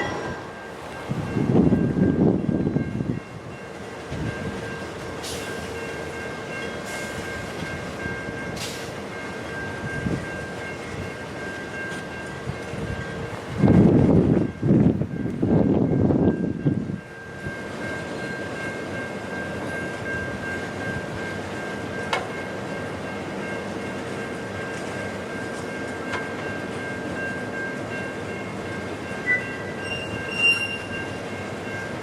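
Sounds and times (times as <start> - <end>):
train cars rolling on rails: 0.0 - 32.0
wheel squeal: 29.3 - 31.0.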